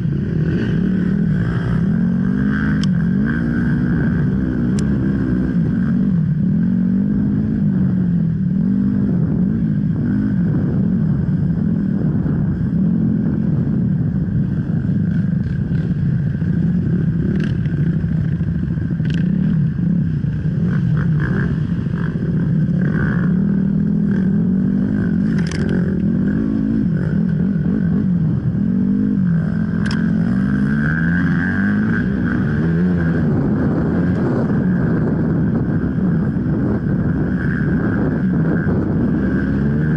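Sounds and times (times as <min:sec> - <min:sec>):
dirt bike engine revving: 0:00.0 - 0:12.2, 0:15.1 - 0:39.9
sharp clicks: 0:25.3 - 0:25.8, 0:29.8 - 0:30.0.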